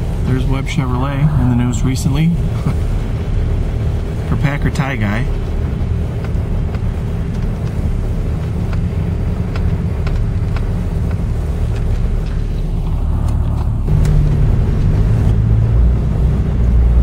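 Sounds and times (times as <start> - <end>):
car engine and road rumble: 0.0 - 17.0
faint regular ticking: 1.7 - 14.2.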